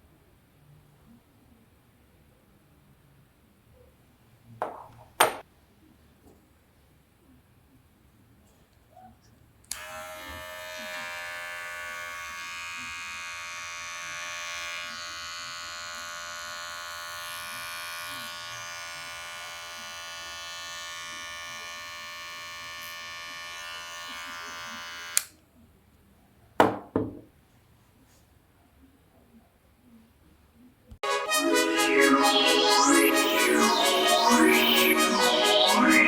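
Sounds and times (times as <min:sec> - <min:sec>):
trimmer switch click: 0:09.7 - 0:09.9
electric hair trimmer buzzing: 0:09.7 - 0:25.3.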